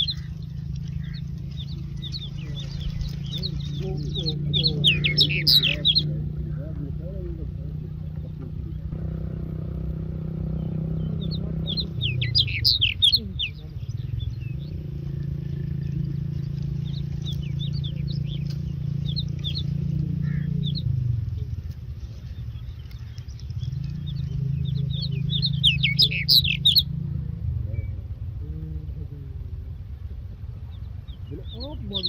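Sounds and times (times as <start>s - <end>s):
bird chicks chirping: 0.0s - 32.0s
low steady hum: 0.0s - 32.0s.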